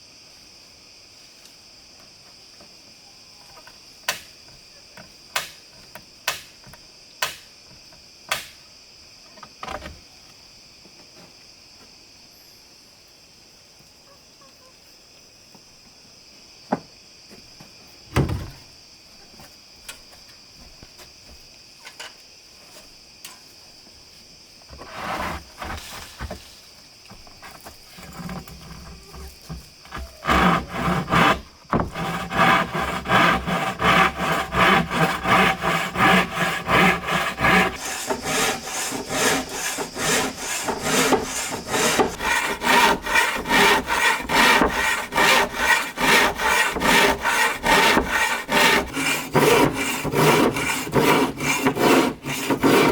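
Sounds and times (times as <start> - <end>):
hand saw cutting wood: 24.8 - 25.9, 28.0 - 52.9
high insect buzz: 27.7 - 52.9.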